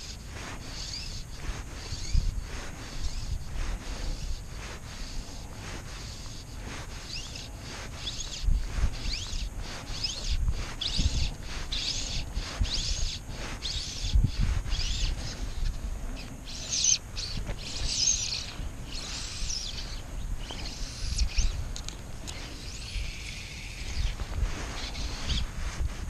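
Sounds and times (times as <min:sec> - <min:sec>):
small birds chirping: 0:00.0 - 0:26.0
wind rumble on microphone: 0:00.0 - 0:26.0.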